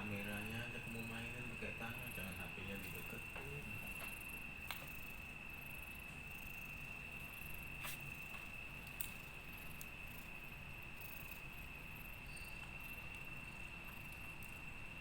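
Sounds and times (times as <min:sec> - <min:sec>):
cricket trilling: 0:00.0 - 0:15.0
faint background hiss: 0:00.0 - 0:15.0
faint clicks: 0:02.8 - 0:05.1.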